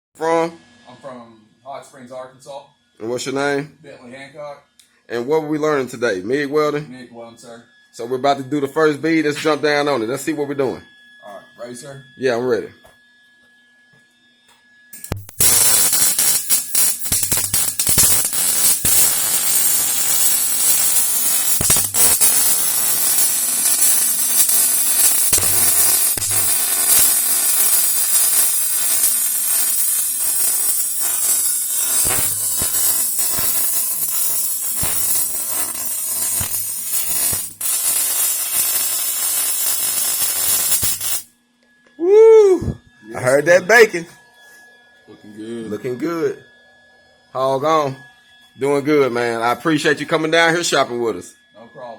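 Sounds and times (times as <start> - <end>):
welding arc crackling: 15.0 - 41.3.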